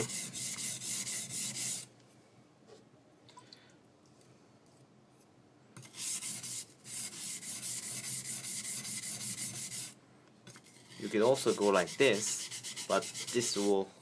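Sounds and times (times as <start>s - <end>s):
knife scraping on water stone: 5.8s - 13.7s.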